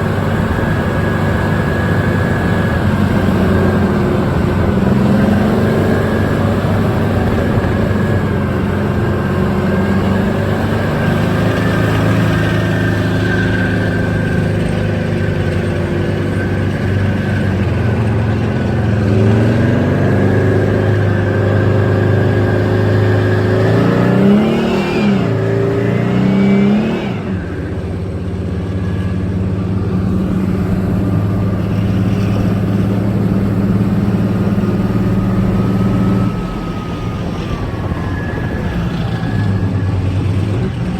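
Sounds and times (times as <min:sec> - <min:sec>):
tank diesel engine running: 0:00.0 - 0:40.9.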